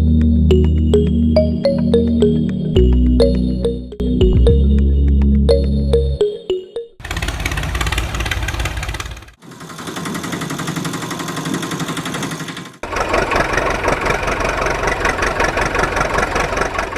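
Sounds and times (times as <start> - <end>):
engine running with fast pulse: 7.0 - 16.9.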